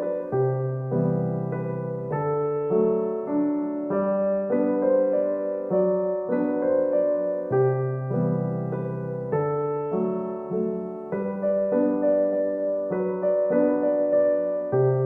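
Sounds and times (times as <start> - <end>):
gentle solo piano piece: 0.0 - 15.0.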